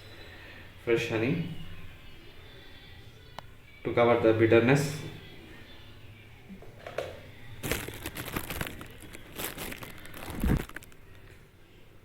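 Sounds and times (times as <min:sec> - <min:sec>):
crinkling crackling handling noises: 0:06.8 - 0:11.4.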